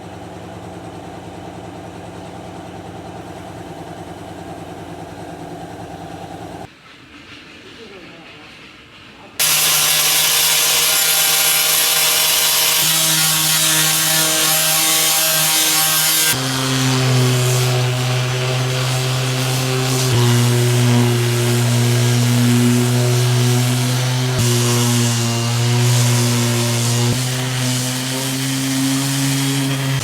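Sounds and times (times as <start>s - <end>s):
power tool motor running: 9.4s - 30.0s.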